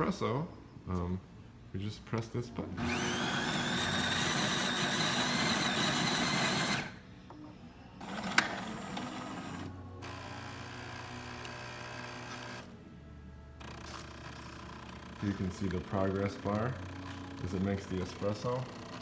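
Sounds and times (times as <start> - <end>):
coffee grinder whining: 2.8 - 7.0, 8.0 - 12.7, 13.6 - 19.0
espresso pump humming: 2.8 - 7.0, 8.0 - 12.8, 13.6 - 19.0.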